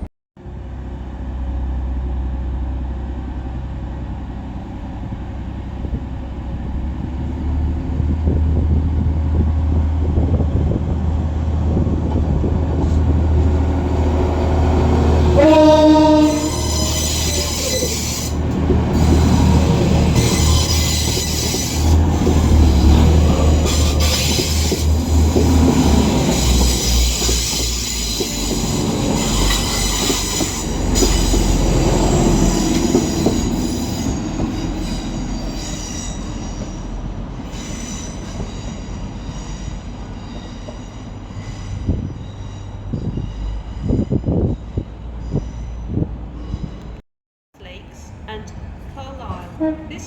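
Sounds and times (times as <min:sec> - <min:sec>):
train rumble: 0:00.0 - 0:47.0, 0:47.6 - 0:50.0
train wheels squealing on rails: 0:15.3 - 0:47.0.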